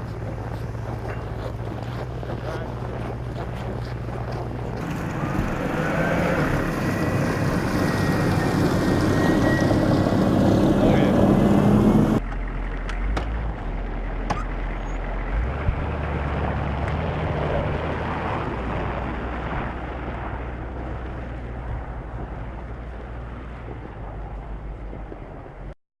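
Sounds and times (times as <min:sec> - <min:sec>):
engine running steadily: 0:00.0 - 0:25.7
wind noise: 0:15.5 - 0:25.7.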